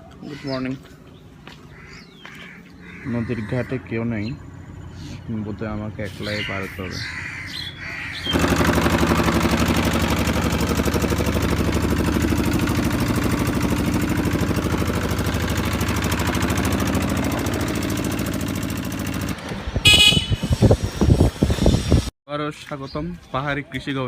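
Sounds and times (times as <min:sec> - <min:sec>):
engine running steadily: 0:08.1 - 0:22.0.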